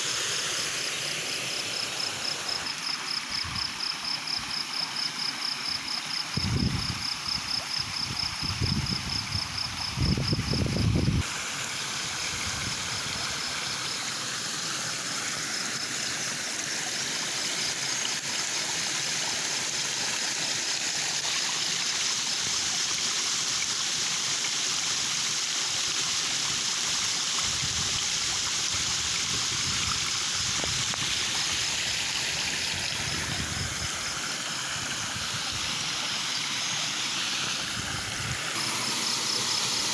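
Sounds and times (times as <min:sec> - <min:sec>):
stream flowing: 0:00.0 - 0:39.9
pulsing insect trill: 0:37.7 - 0:39.9.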